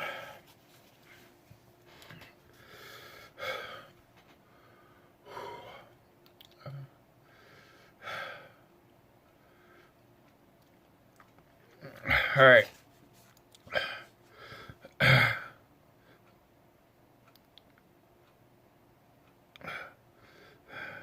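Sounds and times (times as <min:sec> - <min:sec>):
man breathing hard and gasping: 0:00.0 - 0:00.4, 0:01.9 - 0:05.9, 0:07.2 - 0:08.6, 0:13.7 - 0:14.9, 0:19.6 - 0:21.0.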